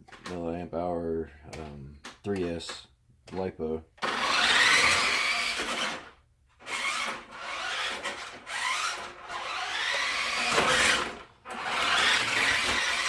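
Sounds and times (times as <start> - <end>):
rc truck electric motor whine: 4.0 - 13.0
gear and tyre noise: 6.7 - 13.0.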